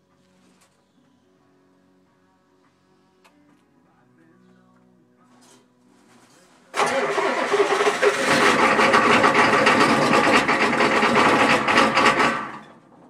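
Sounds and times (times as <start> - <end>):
diesel engine starting: 6.7 - 13.0.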